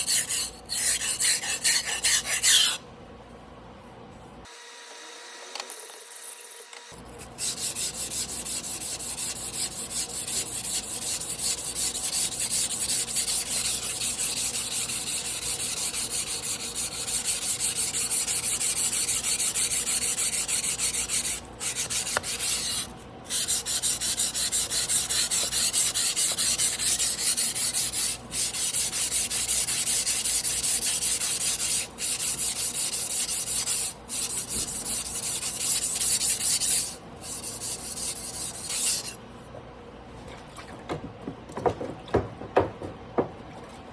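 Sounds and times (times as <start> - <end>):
knife blade scraping on whetstone: 0.0 - 2.8, 7.2 - 39.2.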